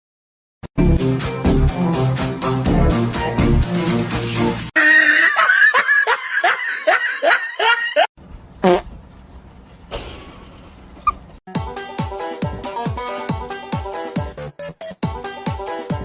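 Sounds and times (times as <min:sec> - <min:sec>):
person laughing: 0:04.8 - 0:08.1.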